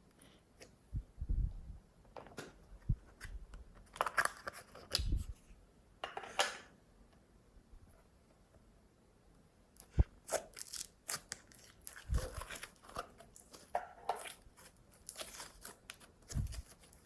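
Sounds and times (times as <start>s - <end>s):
slime squelching: 9.8s - 17.0s.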